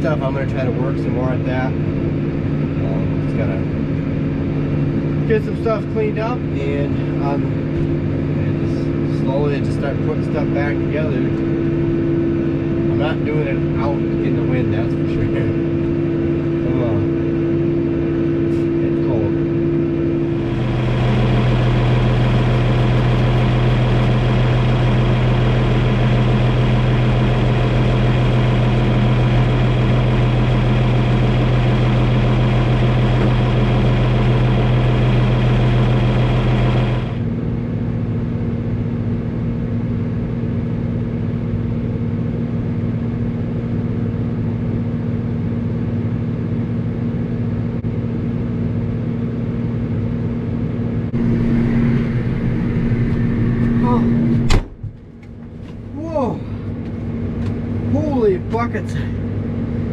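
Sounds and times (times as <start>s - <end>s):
tractor engine idling: 20.1s - 37.3s.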